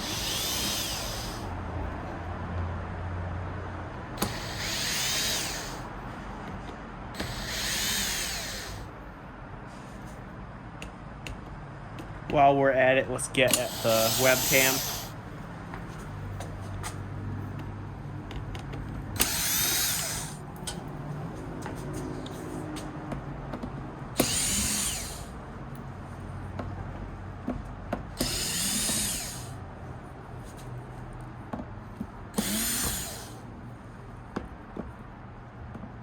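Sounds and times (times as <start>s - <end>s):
electric screwdriver spinning: 0.0s - 1.4s, 19.2s - 20.4s, 24.2s - 25.2s, 28.2s - 29.4s, 32.4s - 33.3s.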